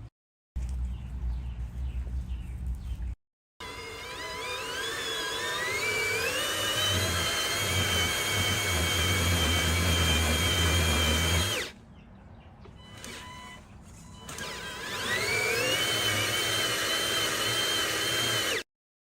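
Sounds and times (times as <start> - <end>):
electric motor whining: 3.6 - 11.8, 12.8 - 18.6.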